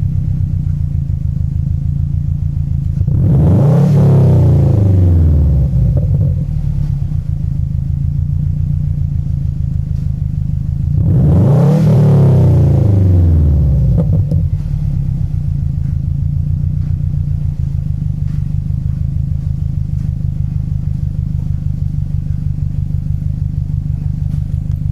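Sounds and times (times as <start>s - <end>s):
car engine idling: 0.0s - 24.9s
engine revving: 2.9s - 7.1s, 10.8s - 16.0s.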